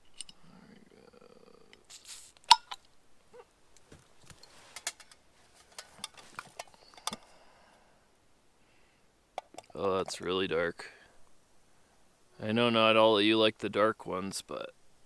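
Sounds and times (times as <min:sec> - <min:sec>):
bottle handling clicks and knocks: 0:02.5 - 0:02.9, 0:09.4 - 0:09.8.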